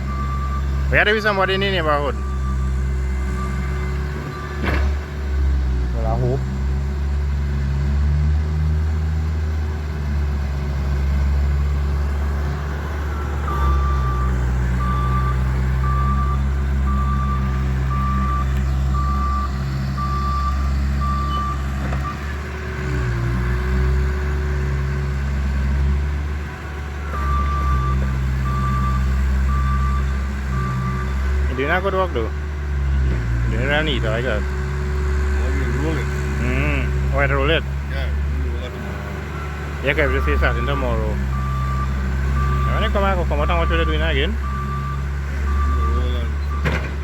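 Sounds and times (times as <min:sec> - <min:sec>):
reversing alarm beeps: 0:00.0 - 0:04.7, 0:13.1 - 0:22.3, 0:27.0 - 0:31.3, 0:39.4 - 0:46.8
loader engine running: 0:00.0 - 0:47.0.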